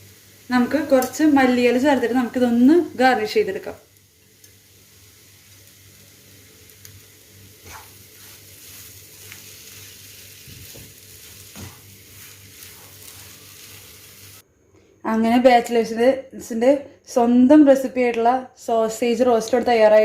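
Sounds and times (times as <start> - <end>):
sausage sizzling: 0.0 - 14.4.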